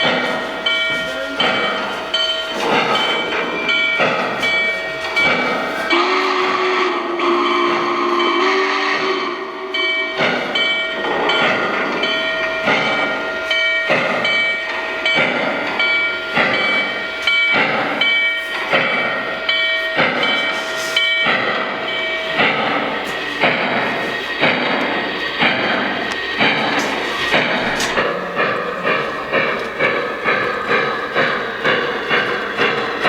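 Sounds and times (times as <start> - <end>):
bell ringing: 0.0 - 6.4, 9.4 - 33.0
steam locomotive chuffing: 0.0 - 33.0
steam whistle blowing: 5.2 - 10.6.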